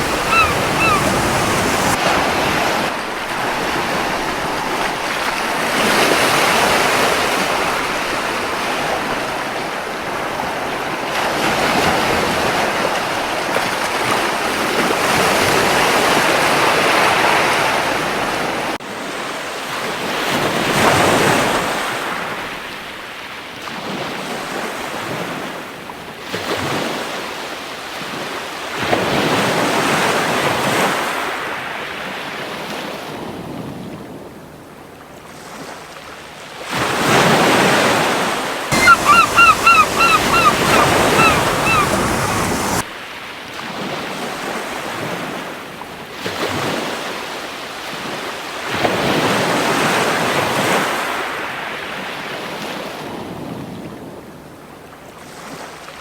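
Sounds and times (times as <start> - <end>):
ocean waves breaking on beach: 0.0 - 18.8, 36.5 - 42.9.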